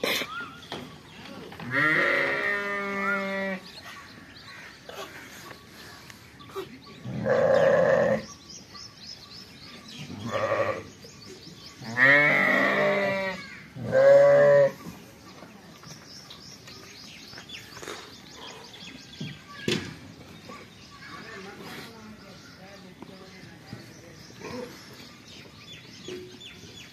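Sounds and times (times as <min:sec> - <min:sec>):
lambs bleating: 0:01.7 - 0:03.6.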